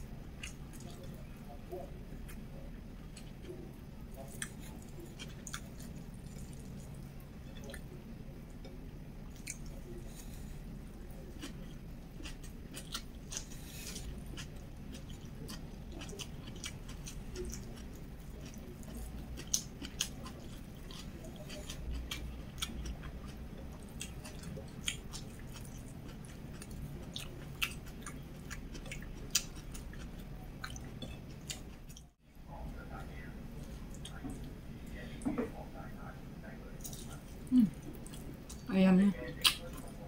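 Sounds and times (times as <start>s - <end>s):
close chewing: 3.1s - 7.9s, 11.1s - 32.2s, 36.8s - 40.0s.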